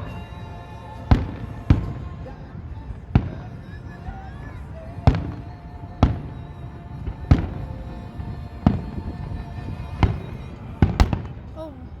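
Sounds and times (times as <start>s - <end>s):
patriotic music: 0.0s - 12.0s
fireworks booming: 10.0s - 11.9s.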